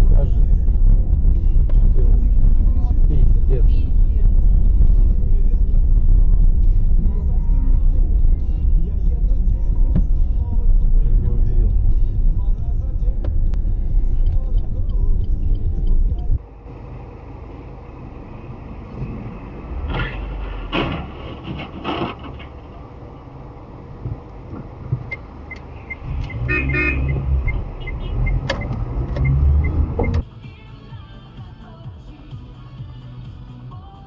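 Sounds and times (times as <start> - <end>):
car engine and road rumble: 0.0 - 34.0
car horn: 25.8 - 30.2.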